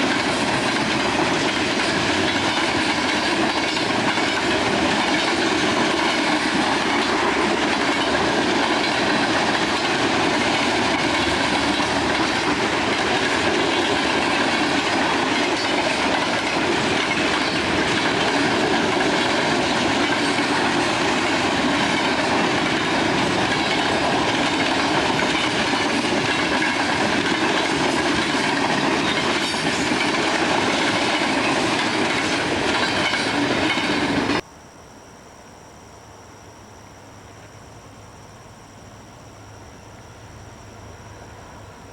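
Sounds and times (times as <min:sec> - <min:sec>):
train wheels on rails: 0:00.0 - 0:34.5.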